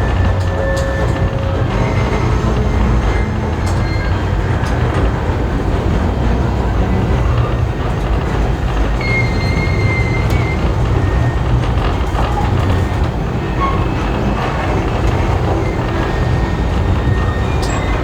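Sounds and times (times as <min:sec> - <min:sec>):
high-pitched wheel squeal: 0:00.0 - 0:05.2, 0:09.0 - 0:18.0
train wheels rumbling on rails: 0:00.0 - 0:18.0.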